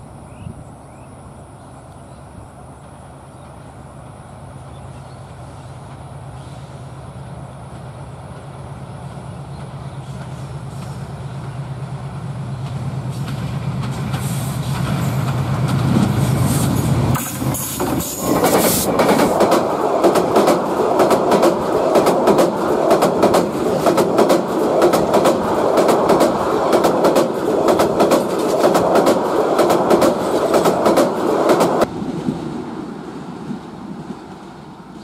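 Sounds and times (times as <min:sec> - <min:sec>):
train rumble: 0:00.0 - 0:35.0
train wheels clacking: 0:09.1 - 0:31.9.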